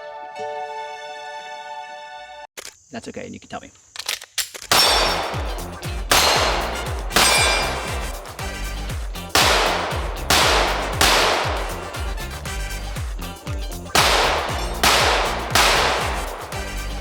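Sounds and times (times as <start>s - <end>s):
steel target ringing clang: 4.7s - 8.7s, 9.4s - 12.2s, 14.0s - 16.8s
pistol shots: 4.7s - 12.5s, 14.0s - 17.0s.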